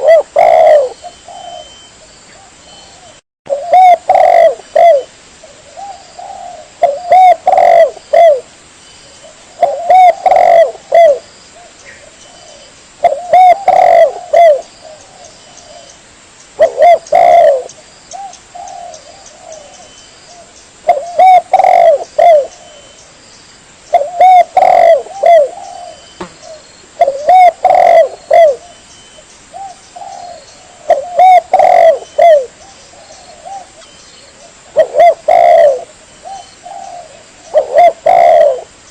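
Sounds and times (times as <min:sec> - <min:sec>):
dove cooing: 0:00.0 - 0:08.5, 0:09.2 - 0:16.0, 0:16.6 - 0:23.0, 0:23.9 - 0:28.8, 0:29.5 - 0:38.8.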